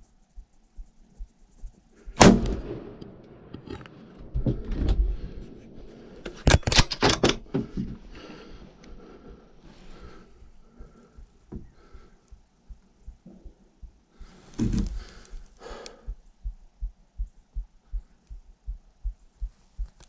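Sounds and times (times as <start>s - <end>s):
rifle shot: 2.2s - 3.5s
low rumbling handling noise: 9.9s - 17.7s
sharp clicks: 14.6s - 16.1s.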